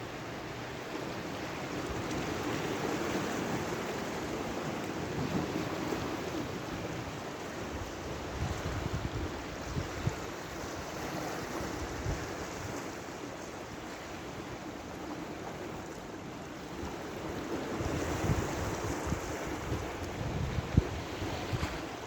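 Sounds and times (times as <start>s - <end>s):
sea waves washing on shore: 0.0s - 22.0s
wind buffeting microphone: 7.8s - 10.9s, 17.7s - 22.0s.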